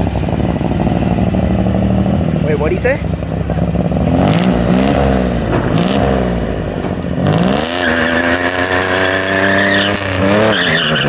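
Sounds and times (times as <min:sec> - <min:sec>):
vehicle engine revving: 0:00.0 - 0:11.0
tyres squealing: 0:07.6 - 0:11.0.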